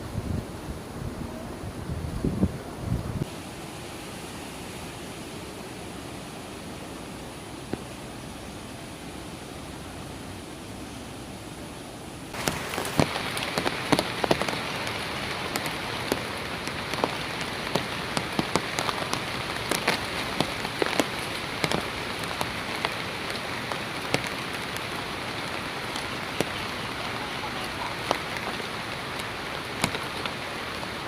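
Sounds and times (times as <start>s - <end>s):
heavy rain falling: 0.0s - 31.0s
raindrops tapping: 12.3s - 31.0s.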